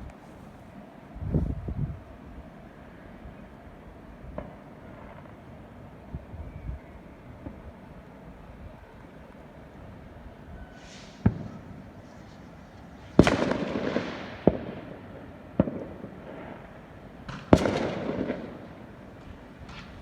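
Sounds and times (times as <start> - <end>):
fireworks bangs: 4.3 - 5.5, 10.7 - 20.0.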